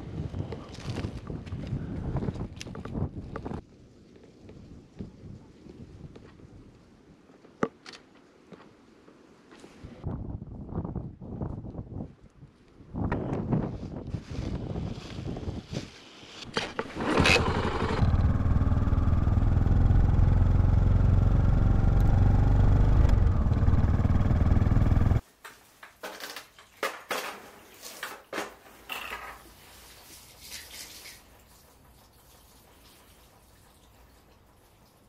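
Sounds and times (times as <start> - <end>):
motorcycle engine kick-started: 16.6 - 25.2.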